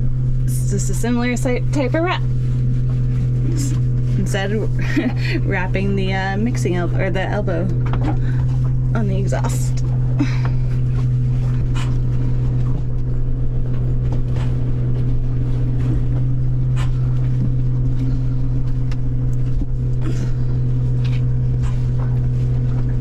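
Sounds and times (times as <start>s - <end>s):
boat machinery hum: 0.0s - 23.0s.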